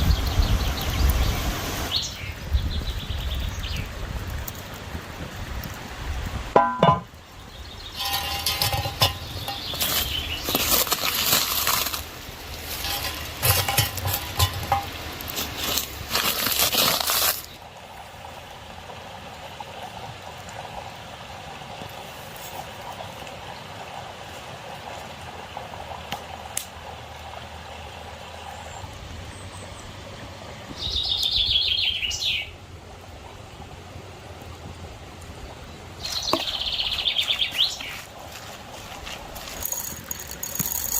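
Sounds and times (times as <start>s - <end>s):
flowing stream: 0.0s - 40.9s
knocking and rustling of handling: 6.6s - 7.1s, 8.0s - 17.4s.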